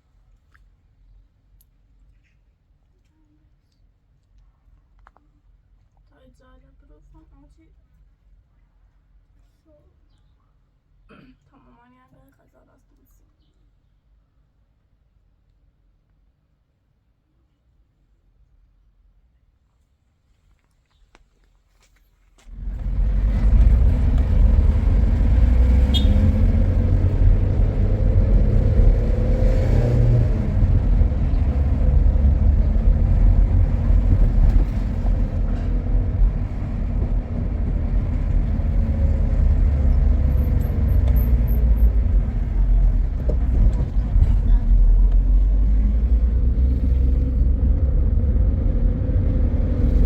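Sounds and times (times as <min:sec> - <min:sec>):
vehicle rumble: 0:22.4 - 0:50.0.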